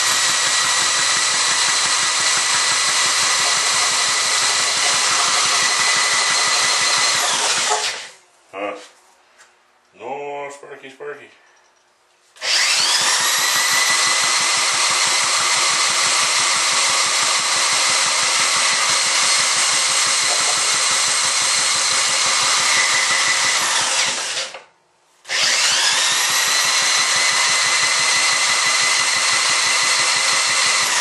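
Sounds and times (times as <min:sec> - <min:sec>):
engine turning over: 0:00.0 - 0:08.1, 0:12.4 - 0:24.6, 0:25.3 - 0:31.0
electric motor whine: 0:12.4 - 0:21.6, 0:25.3 - 0:31.0.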